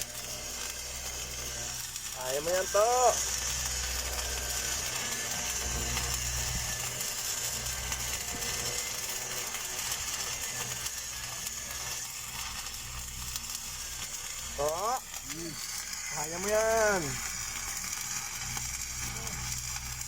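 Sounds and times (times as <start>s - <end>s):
welding arc crackling hiss: 0.0s - 20.0s
low hum: 3.1s - 9.5s.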